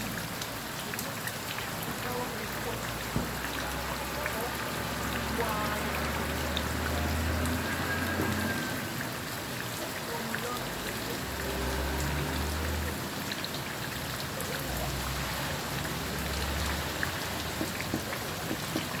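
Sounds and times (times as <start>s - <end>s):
passing traffic rumble: 0.0s - 19.0s
steady rain pattering: 0.0s - 19.0s.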